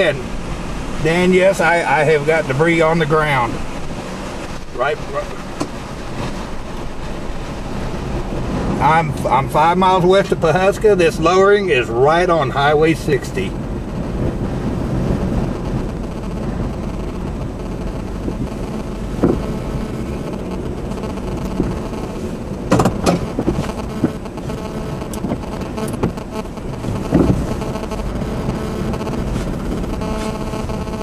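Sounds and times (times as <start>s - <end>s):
car engine rumbling: 0.0s - 31.0s
sharp knocks: 19.2s - 19.4s, 22.7s - 24.2s.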